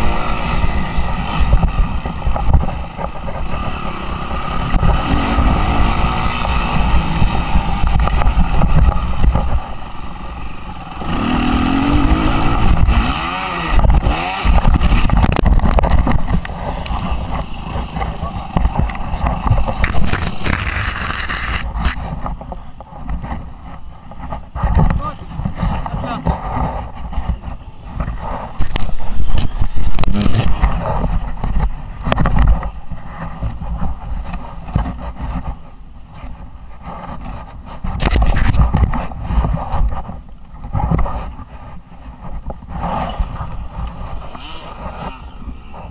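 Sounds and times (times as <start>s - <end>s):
motocross engine revving: 0.0s - 22.1s, 24.6s - 31.2s, 42.8s - 45.9s
wind on microphone: 0.0s - 45.9s.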